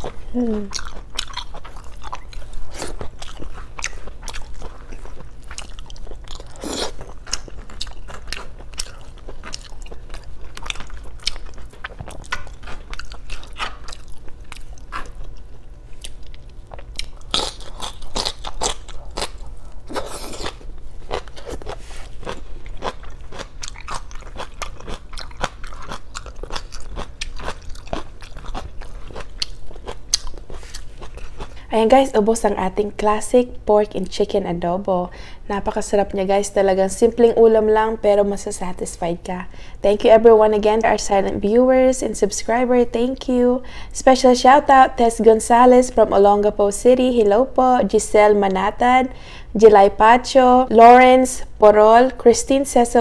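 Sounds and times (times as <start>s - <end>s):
person chewing with crunches: 0.0s - 31.7s.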